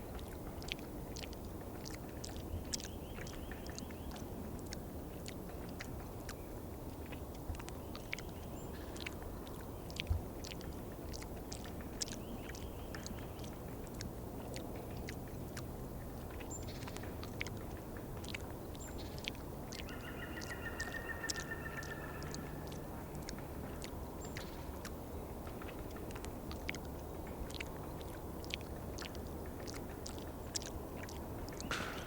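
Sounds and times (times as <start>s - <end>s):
woodpecker tapping: 19.8s - 24.6s.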